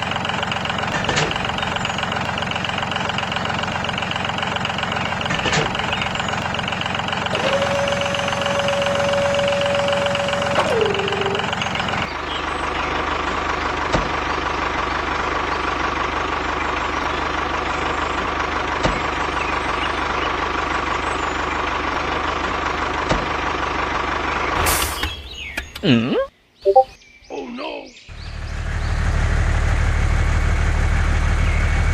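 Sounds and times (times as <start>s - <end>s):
engine whine: 0.0s - 16.4s
mini tractor engine running: 0.0s - 24.6s.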